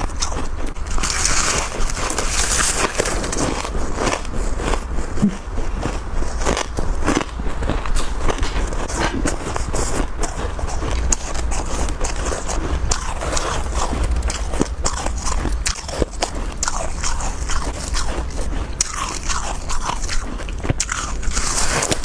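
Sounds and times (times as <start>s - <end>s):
crunching frost chunks: 0.0s - 22.0s
steady low hum: 0.0s - 22.0s.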